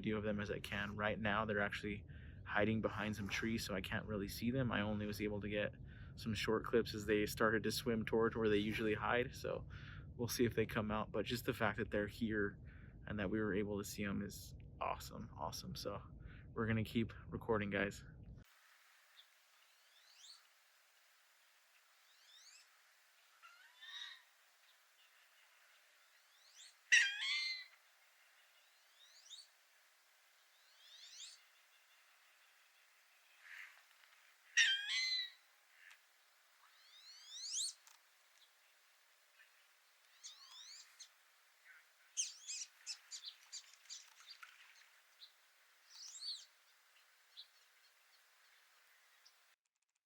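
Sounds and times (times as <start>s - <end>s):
small birds chirping faintly: 18.4s - 49.6s
thin rising bird whistle: 19.6s - 20.5s, 22.0s - 22.8s, 28.6s - 29.5s, 30.5s - 31.4s, 36.7s - 37.8s, 40.1s - 41.1s, 45.9s - 46.5s
harsh bird call: 26.4s - 27.8s, 34.5s - 35.9s, 40.2s - 44.1s.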